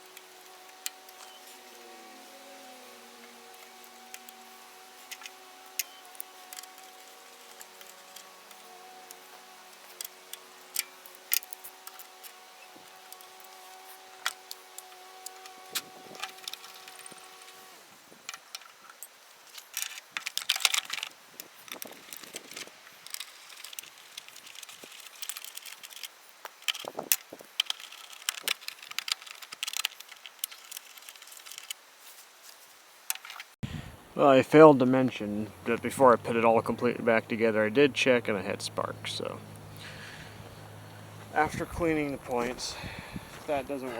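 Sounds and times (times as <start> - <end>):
faint steady hum: 0.0 - 18.4, 33.6 - 43.9.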